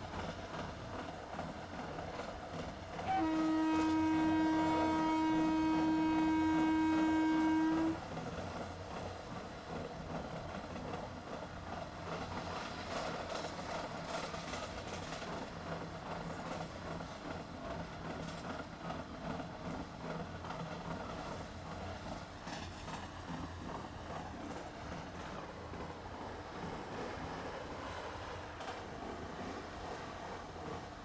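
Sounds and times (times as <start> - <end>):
train horn blast: 3.0 - 8.0.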